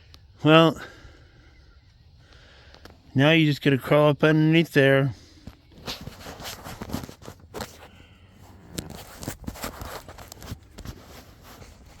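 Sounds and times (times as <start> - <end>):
rustling: 5.7 - 12.0.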